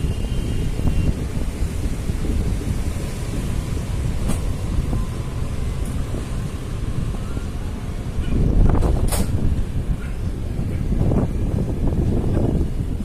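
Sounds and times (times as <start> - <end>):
train wheels rumbling on rails: 0.0 - 13.0
wind buffeting microphone: 0.0 - 13.0.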